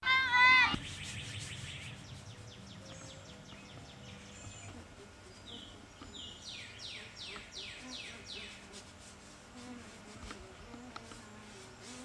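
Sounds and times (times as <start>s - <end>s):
birds chirping: 0.1s - 8.7s
faint low hum: 0.1s - 12.0s.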